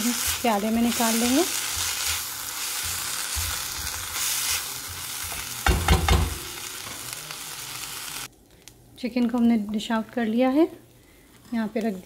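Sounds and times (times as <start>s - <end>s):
spatula stirring and scraping pan: 0.0s - 7.1s
food sizzling in a wok: 0.0s - 8.3s.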